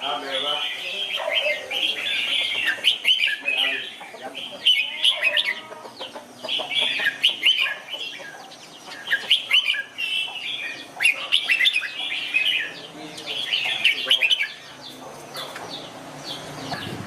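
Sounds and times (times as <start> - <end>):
bird warbling song: 0.0 - 17.0.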